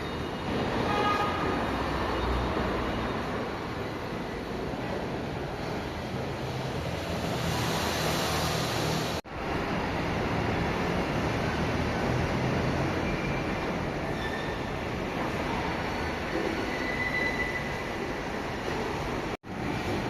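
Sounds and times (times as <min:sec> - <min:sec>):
train rumbling: 0:00.0 - 0:20.0
faint wheel squeals: 0:13.0 - 0:14.8, 0:16.5 - 0:18.0.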